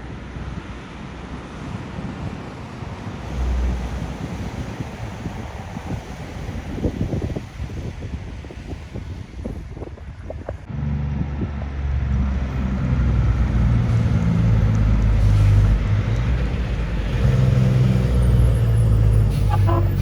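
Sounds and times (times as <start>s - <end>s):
wind noise on microphone: 1.6s - 20.0s
truck diesel engine approaching: 10.6s - 20.0s.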